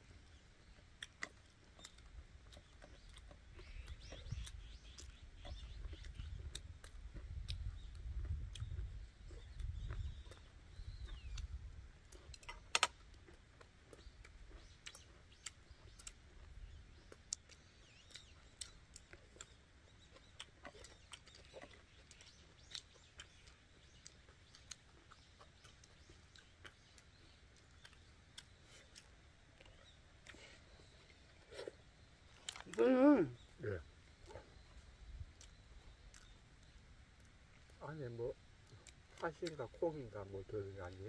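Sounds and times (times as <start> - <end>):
chewing and mouth clicks: 0.0 - 41.0
low wind rumble: 2.0 - 14.8, 33.3 - 39.1.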